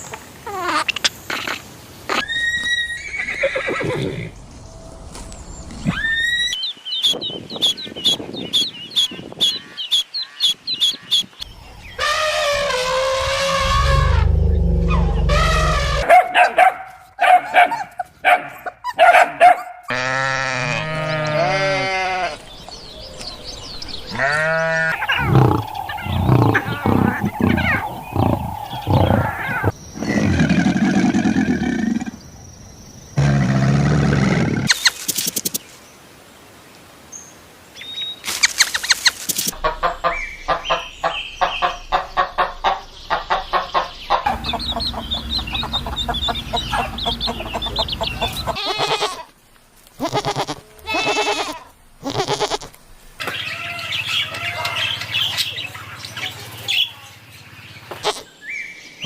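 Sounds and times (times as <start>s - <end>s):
bleating: 19.9s - 22.4s, 24.1s - 28.3s, 48.3s - 49.3s, 50.0s - 52.8s, 57.9s - 58.3s
clucking: 39.5s - 49.0s.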